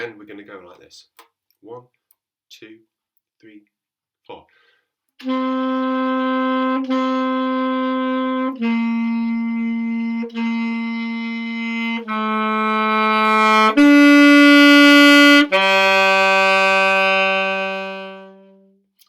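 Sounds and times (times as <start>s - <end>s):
saxophone playing held notes: 5.2s - 18.8s.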